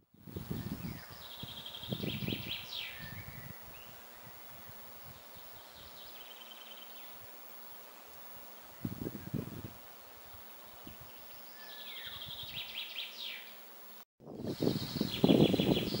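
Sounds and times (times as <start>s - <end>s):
wind rumble on microphone: 0.0s - 6.1s, 8.7s - 9.8s, 10.8s - 11.2s, 12.0s - 12.7s, 14.2s - 16.0s
songbird trilling: 0.7s - 3.9s, 11.4s - 13.6s.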